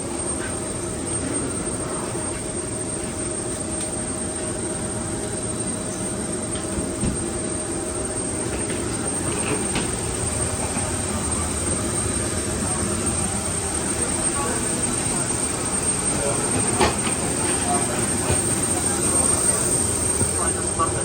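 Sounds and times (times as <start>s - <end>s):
aircraft cabin hum: 6.4s - 21.0s.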